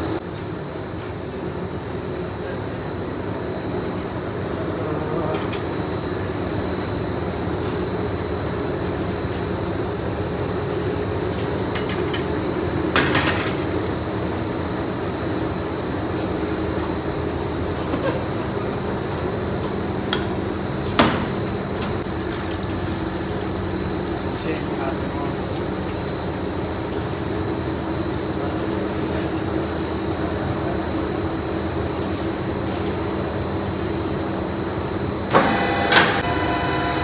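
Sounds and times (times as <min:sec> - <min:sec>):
factory machinery humming: 0:00.0 - 0:22.2, 0:23.5 - 0:37.0
high machine whine: 0:34.2 - 0:37.0.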